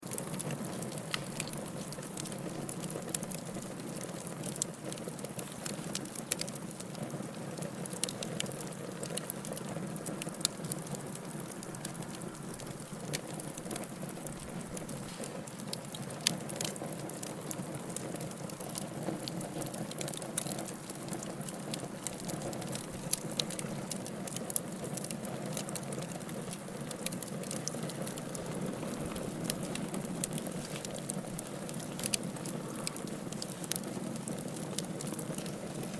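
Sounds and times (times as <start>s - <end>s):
wood fire crackling: 0.0s - 35.9s.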